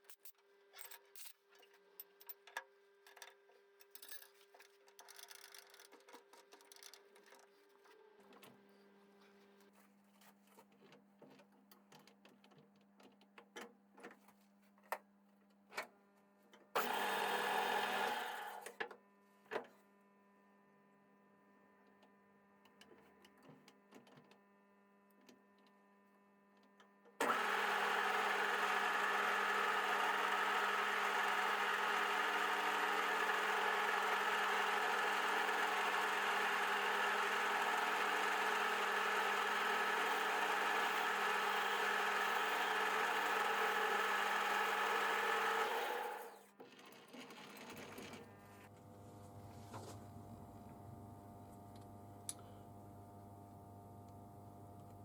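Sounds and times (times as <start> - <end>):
metal parts clicking and tapping: 0.0 - 7.5
electric workshop machine running: 16.8 - 18.7, 27.2 - 46.5.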